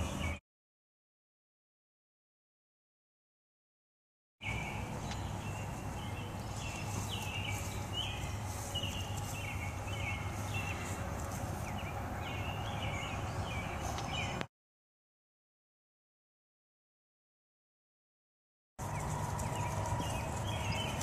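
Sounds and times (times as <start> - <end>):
small birds chirping: 0.0 - 0.4, 4.4 - 14.5, 18.8 - 21.0
low steady rumble: 4.4 - 14.4, 18.8 - 21.0.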